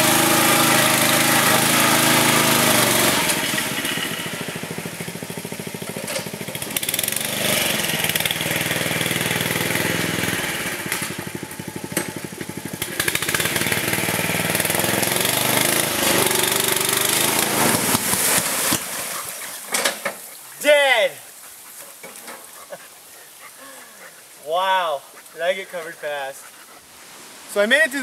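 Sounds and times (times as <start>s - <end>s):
riding lawn mower engine: 0.0s - 20.4s.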